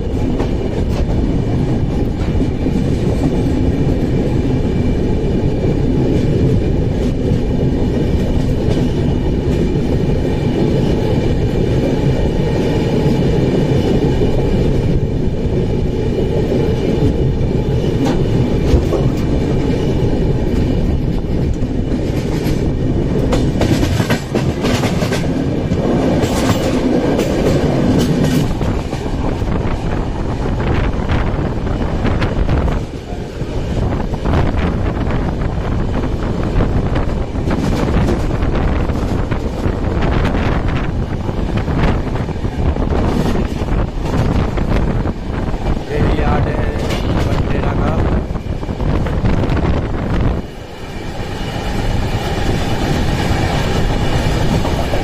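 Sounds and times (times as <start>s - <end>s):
rumble of train wheels on rails: 0.0s - 55.0s
wheels clicking over rail joints: 20.4s - 29.5s.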